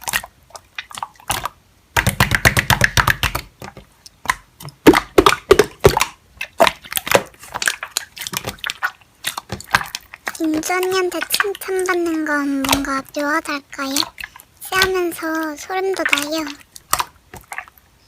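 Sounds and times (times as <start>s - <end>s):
slime crackling and popping: 0.0s - 13.0s.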